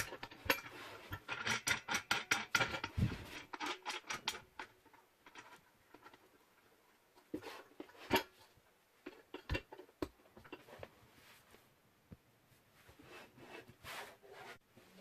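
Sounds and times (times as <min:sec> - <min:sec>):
sharp handling clicks and knocks: 0:00.0 - 0:10.9.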